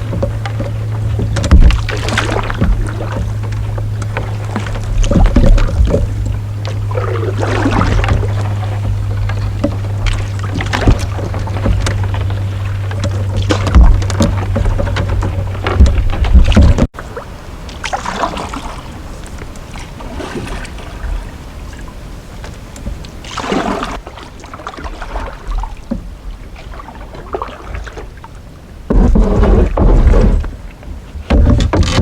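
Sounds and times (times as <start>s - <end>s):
wind buffeting microphone: 0.0s - 24.0s
canoe paddles splashing: 0.0s - 32.0s.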